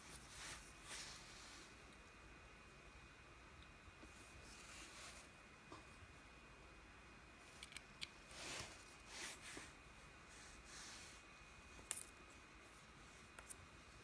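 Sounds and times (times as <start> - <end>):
soft rustles: 0.0 - 1.8, 4.0 - 5.4, 8.2 - 13.6.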